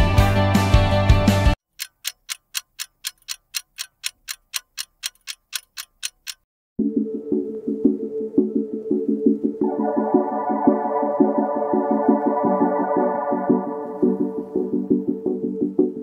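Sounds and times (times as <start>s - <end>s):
rock background music: 0.0s - 1.6s
clock-like ticking: 1.7s - 6.5s.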